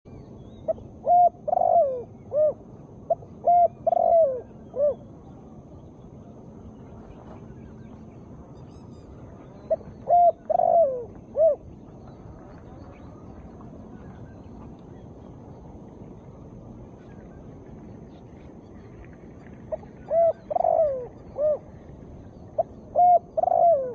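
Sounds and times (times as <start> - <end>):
dove cooing: 0.6 - 5.1, 9.7 - 11.7, 19.7 - 21.9, 22.5 - 23.9.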